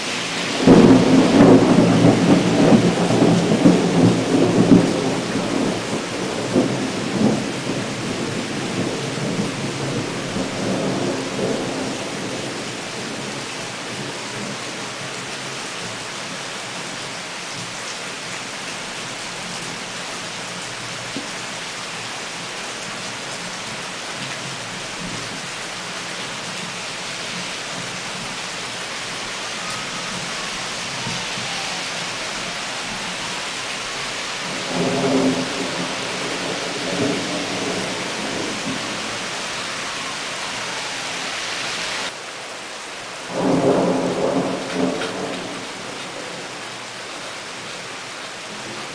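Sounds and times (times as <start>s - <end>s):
torrential rain pouring: 0.0s - 48.9s
low rumble of thunder: 0.5s - 15.3s, 27.7s - 41.0s, 43.3s - 46.6s.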